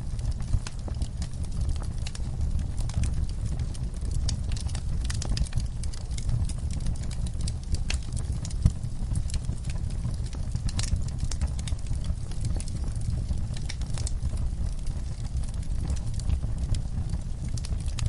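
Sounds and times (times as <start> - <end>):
low rumble of flames: 0.0 - 18.0
wood fire crackling: 0.0 - 18.0.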